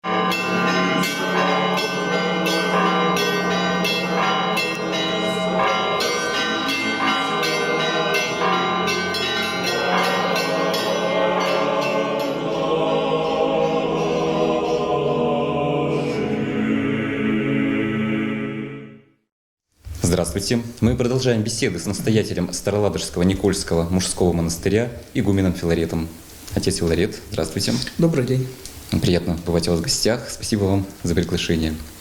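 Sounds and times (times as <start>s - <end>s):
church bells ringing: 0.0s - 14.8s.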